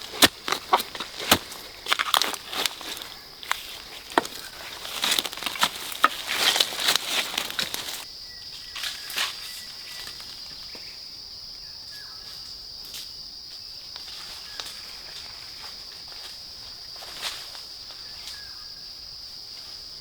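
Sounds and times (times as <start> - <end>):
footsteps crackling in leaf litter: 0.0 - 8.1
rustling of dry leaves: 0.0 - 10.8, 13.6 - 20.0.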